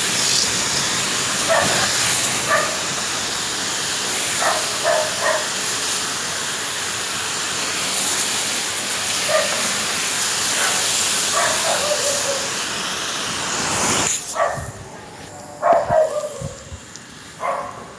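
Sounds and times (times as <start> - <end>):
loud steady hiss: 0.0 - 17.9
dog yipping: 1.5 - 2.9, 4.4 - 5.5, 9.2 - 9.7, 10.6 - 12.6, 14.3 - 16.8, 17.4 - 17.8.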